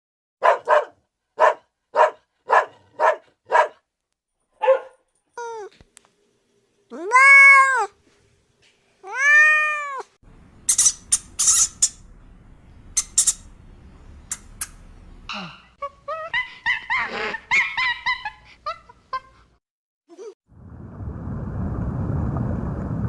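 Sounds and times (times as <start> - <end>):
cat meowing: 6.9 - 8.0, 9.0 - 10.1.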